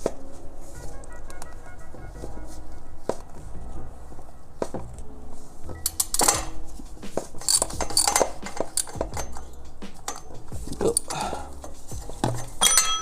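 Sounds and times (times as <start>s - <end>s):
metal tools clinking: 5.7s - 13.0s.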